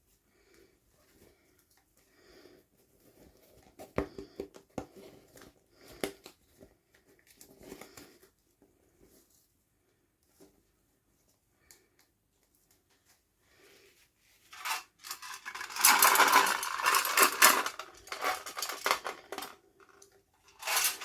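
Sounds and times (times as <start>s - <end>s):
plastic packaging crinkling: 14.5s - 19.6s.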